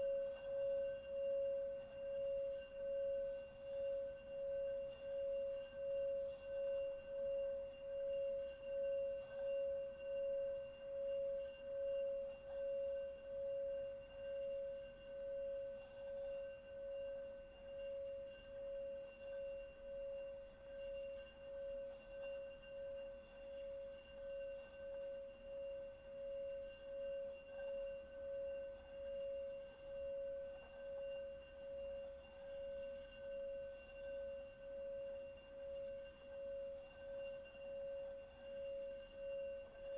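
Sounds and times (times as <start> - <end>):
singing bowl tone: 0.0 - 39.9.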